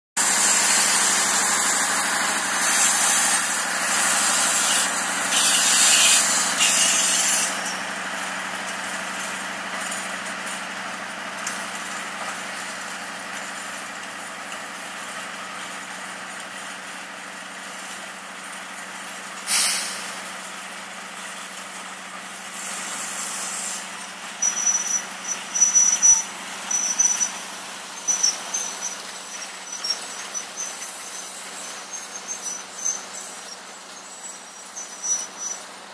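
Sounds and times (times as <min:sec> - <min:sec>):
high-pitched wheel squeals: 0:00.2 - 0:07.9, 0:22.6 - 0:35.9
train coaches rolling on rails: 0:00.2 - 0:35.9.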